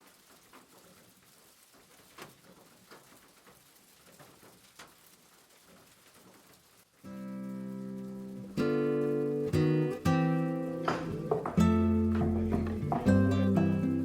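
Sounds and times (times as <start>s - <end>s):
rain patter: 0.0s - 14.0s.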